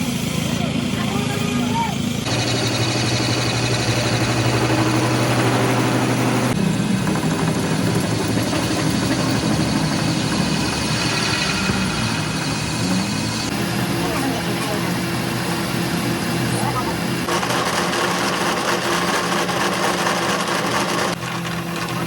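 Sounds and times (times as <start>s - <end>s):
heavy machinery humming: 0.0s - 22.0s.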